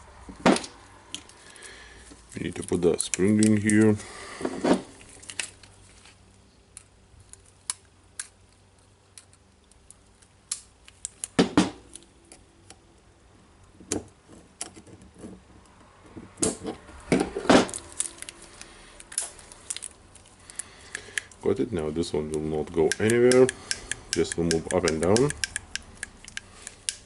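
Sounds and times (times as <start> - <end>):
small metal parts clicking: 17.7 - 21.4, 22.2 - 27.0.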